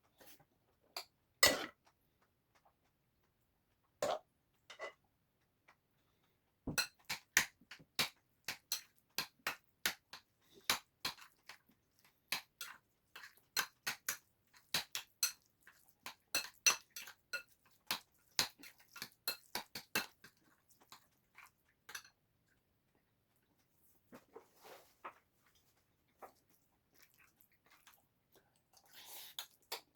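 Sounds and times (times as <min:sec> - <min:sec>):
spoon clinking against a dish: 0:06.7 - 0:07.2, 0:13.6 - 0:15.5, 0:16.1 - 0:20.2, 0:21.9 - 0:22.2.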